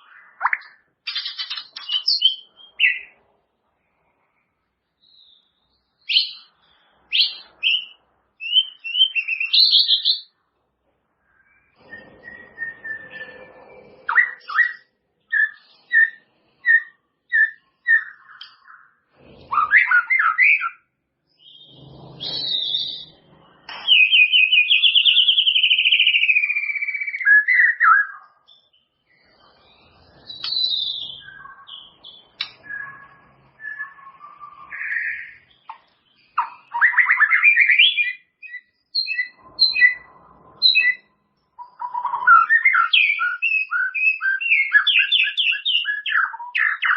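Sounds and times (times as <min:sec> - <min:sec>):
bird singing whistled phrases: 0:07.1 - 0:10.3, 0:11.3 - 0:18.9, 0:19.5 - 0:20.8, 0:21.4 - 0:23.1, 0:23.7 - 0:28.7, 0:30.2 - 0:35.5, 0:36.2 - 0:46.9.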